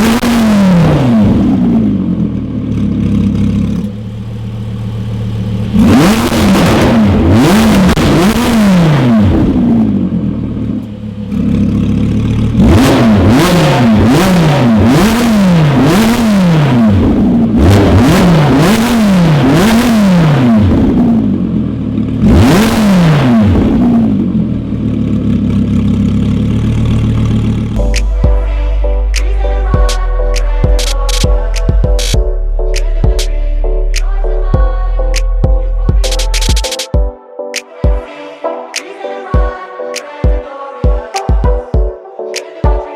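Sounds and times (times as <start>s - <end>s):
sports car engine revving: 0.0s - 32.2s
engine idling: 1.4s - 8.4s, 9.2s - 13.4s, 23.6s - 32.2s.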